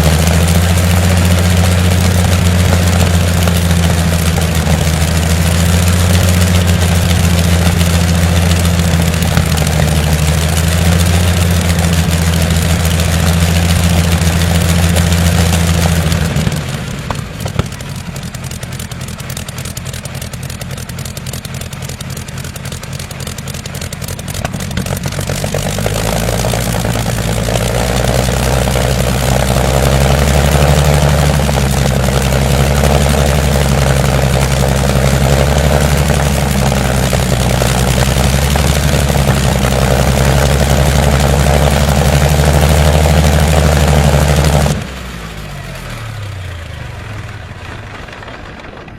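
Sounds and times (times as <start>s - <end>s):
engine idling: 0.0s - 48.9s.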